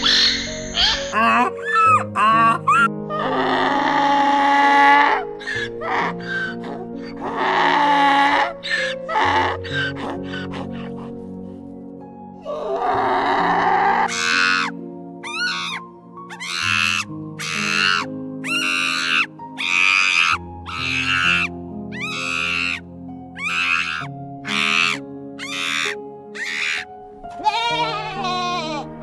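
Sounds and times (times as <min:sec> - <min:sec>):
harsh animal calls: 0:00.0 - 0:11.1, 0:12.4 - 0:22.8, 0:23.4 - 0:28.8
gentle background music: 0:00.0 - 0:29.0
goat bleating: 0:27.3 - 0:28.8.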